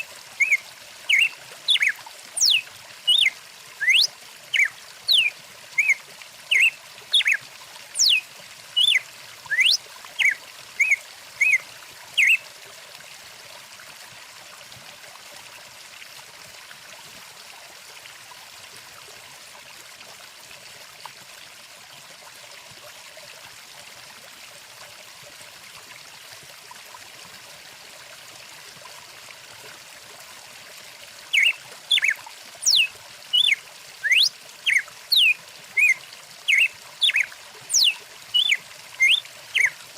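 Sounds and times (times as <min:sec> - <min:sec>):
stream trickling: 0:00.0 - 0:39.9
songbird chirping and whistling: 0:00.4 - 0:07.4, 0:08.0 - 0:08.2, 0:08.8 - 0:11.6, 0:12.2 - 0:12.4, 0:31.4 - 0:39.8.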